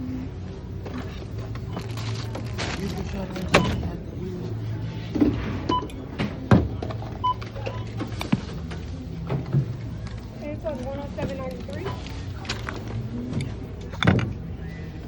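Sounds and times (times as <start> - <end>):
steady store hum: 0.0 - 15.0
items handled clicking and rustling: 0.8 - 4.0, 6.8 - 14.5
checkout scanner beeps: 1.0 - 4.9, 5.6 - 15.0.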